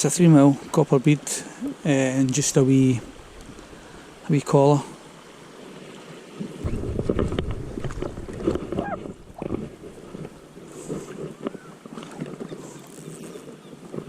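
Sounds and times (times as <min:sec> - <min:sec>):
wind buffeting microphone: 0:01.6 - 0:04.3, 0:06.4 - 0:14.0.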